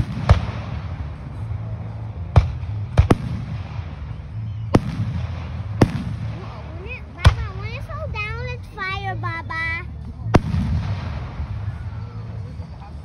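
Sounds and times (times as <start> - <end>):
fireworks bangs: 0.0 - 8.0, 10.3 - 12.7
low rumble: 0.0 - 13.0.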